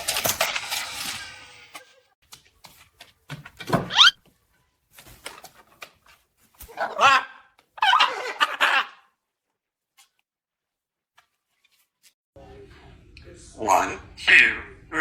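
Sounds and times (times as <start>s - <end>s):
animal calls with wavering pitch: 3.9s - 4.2s.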